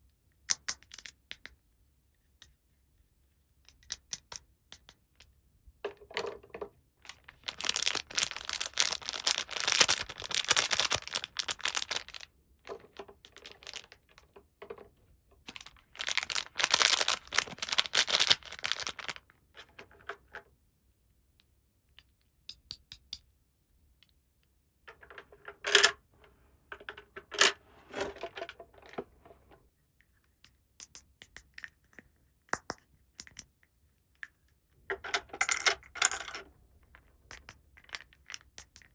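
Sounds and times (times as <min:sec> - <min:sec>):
packaging crinkling and tearing: 0:07.1 - 0:12.3, 0:13.3 - 0:14.0, 0:15.5 - 0:19.2
plastic toy parts clicking: 0:07.1 - 0:14.3, 0:15.5 - 0:20.3, 0:34.9 - 0:36.4.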